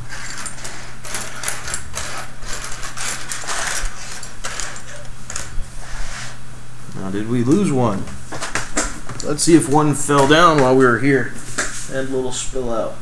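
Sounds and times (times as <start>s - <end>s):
plastic pieces clattering: 0.1s - 5.6s.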